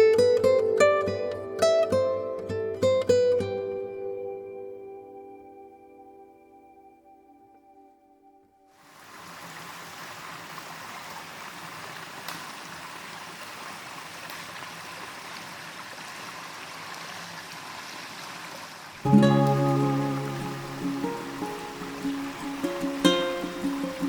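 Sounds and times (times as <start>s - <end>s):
stream water flowing: 8.8s - 24.0s.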